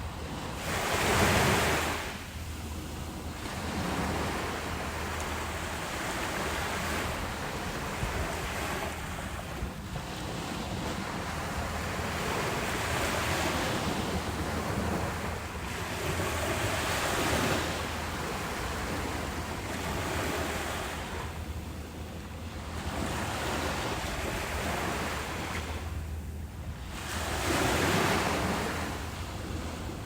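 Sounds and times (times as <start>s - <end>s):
ocean surf breaking: 0.0s - 21.4s.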